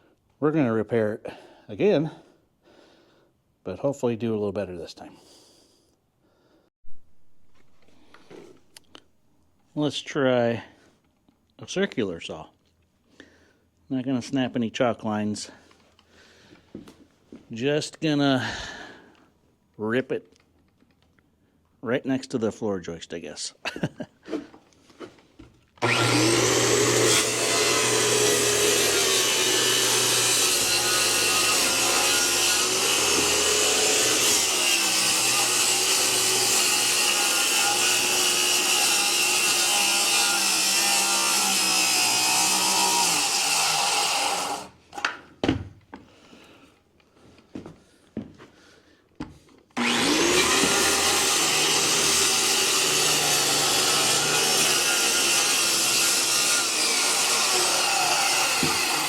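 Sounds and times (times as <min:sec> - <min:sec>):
circular saw cutting wood: 0:25.8 - 0:44.8, 0:49.8 - 0:59.0.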